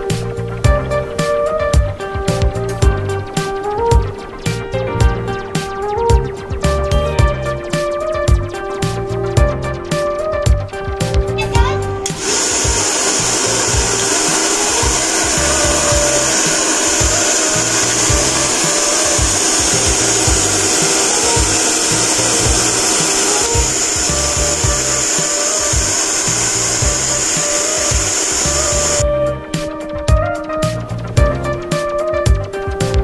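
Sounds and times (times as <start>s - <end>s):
hair dryer running: 12.0s - 29.0s.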